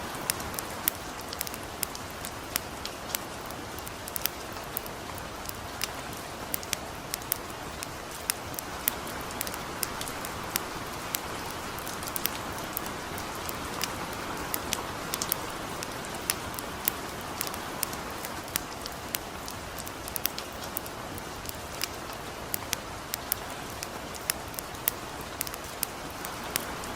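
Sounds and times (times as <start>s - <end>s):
campfire crackling: 0.0s - 26.9s
light rain hiss: 0.0s - 26.9s.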